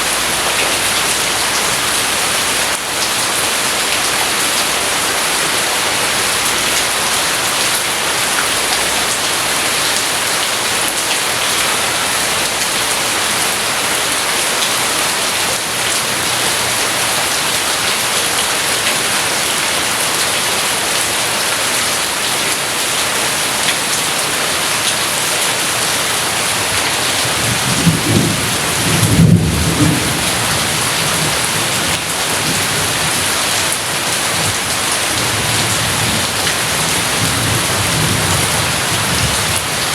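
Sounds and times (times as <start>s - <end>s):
steady rain: 0.0s - 39.9s
thunder rumbling: 27.3s - 31.5s.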